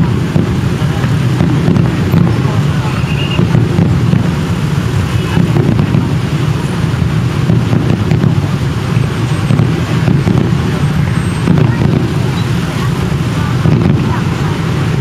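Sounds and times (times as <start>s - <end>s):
murmur of outdoor crowd: 0.0s - 15.0s.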